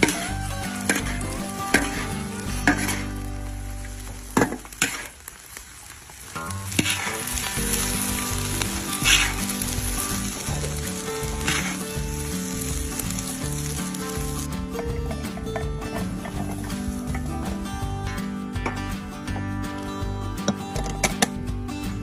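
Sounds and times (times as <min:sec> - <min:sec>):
fish sizzling in a pan: 0:00.0 - 0:14.6, 0:16.3 - 0:17.8.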